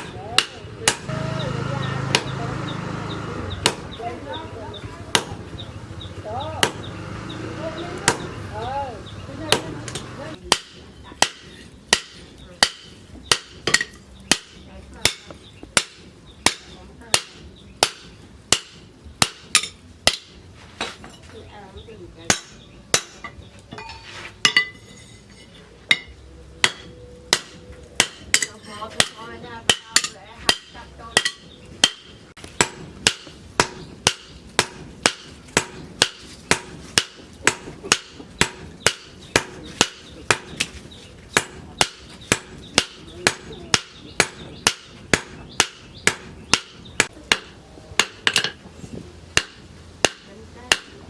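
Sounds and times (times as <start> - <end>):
hammer striking steel on anvil: 0.0 - 2.4, 3.6 - 4.0, 9.5 - 20.5, 22.3 - 25.0, 25.9 - 40.7, 41.3 - 48.6, 49.4 - 51.0.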